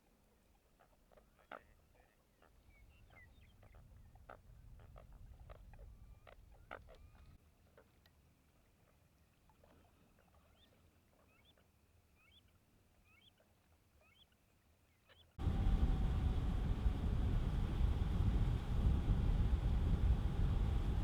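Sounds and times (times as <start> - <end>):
low rumble: 15.4 - 21.0.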